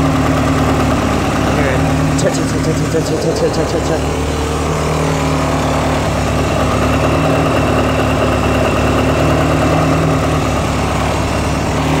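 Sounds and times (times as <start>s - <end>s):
car engine running steadily: 0.0s - 12.0s.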